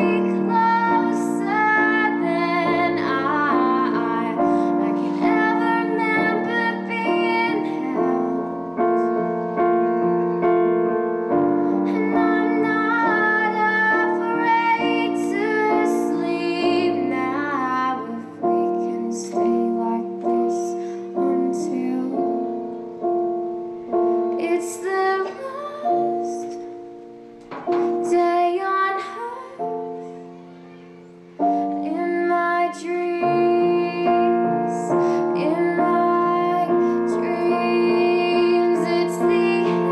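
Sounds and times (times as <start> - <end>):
woman singing: 0.0 - 9.6, 11.5 - 22.8, 24.1 - 26.8, 27.9 - 30.0, 31.6 - 39.9
piano: 0.0 - 39.9.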